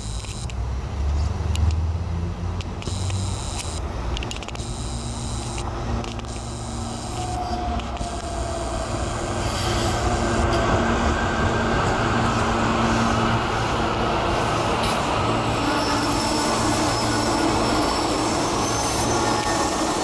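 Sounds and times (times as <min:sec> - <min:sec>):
train rolling past: 0:06.8 - 0:20.0.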